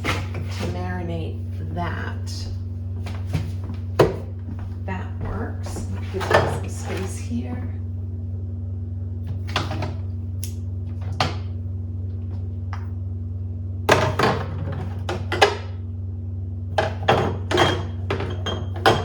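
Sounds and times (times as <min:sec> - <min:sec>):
steady low hum: 0:00.0 - 0:19.0
containers knocking on fridge shelves: 0:03.1 - 0:07.1, 0:13.9 - 0:15.7, 0:16.8 - 0:19.0.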